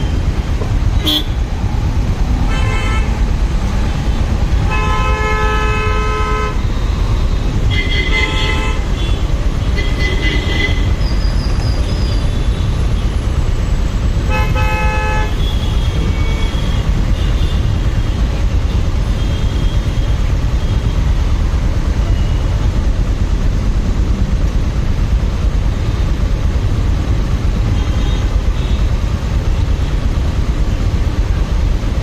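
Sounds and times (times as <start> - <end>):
motorcycle engine and wind rumble: 0.0 - 32.0
vehicle horns honking: 1.0 - 1.4, 2.5 - 3.2, 4.6 - 11.0, 14.2 - 18.1.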